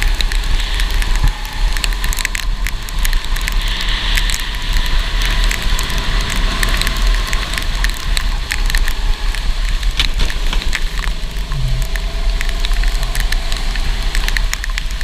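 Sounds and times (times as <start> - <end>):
crackling ticks: 0.0 - 15.0
go-kart engine rumbling: 9.0 - 14.1.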